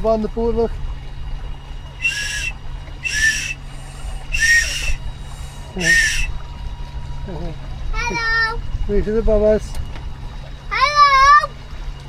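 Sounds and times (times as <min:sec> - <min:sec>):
toy whistle blasts: 0:02.0 - 0:06.3.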